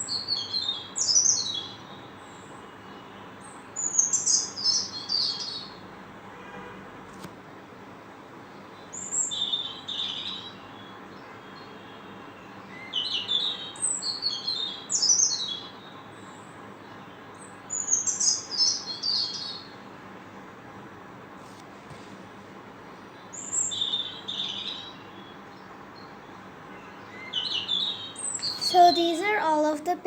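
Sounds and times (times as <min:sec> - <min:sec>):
songbird twittering: 0:27.2 - 0:29.0.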